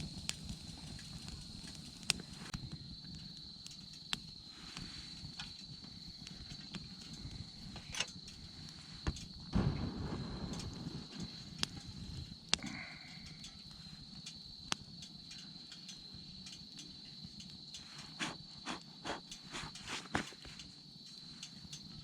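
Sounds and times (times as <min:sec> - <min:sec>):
crickets chirping: 0:00.0 - 0:22.0
soft rustling: 0:17.8 - 0:21.5.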